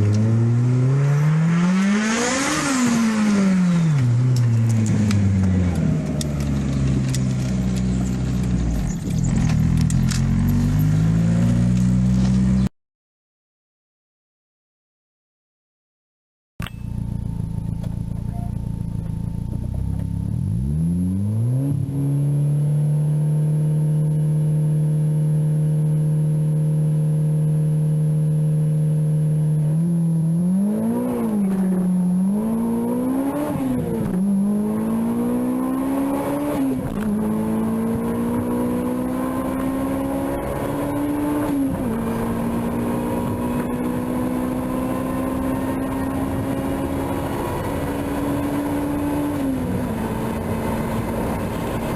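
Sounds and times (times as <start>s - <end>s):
car engine revving: 0.0s - 12.7s, 17.1s - 51.9s.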